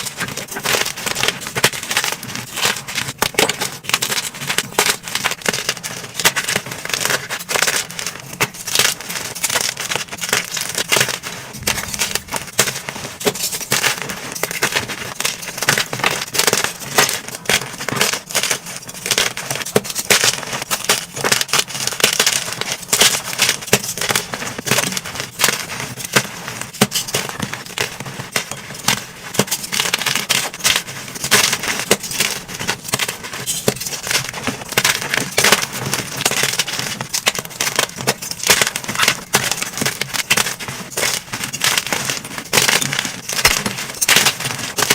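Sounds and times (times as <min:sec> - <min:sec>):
chalk being crushed by hand: 0:00.0 - 0:44.9.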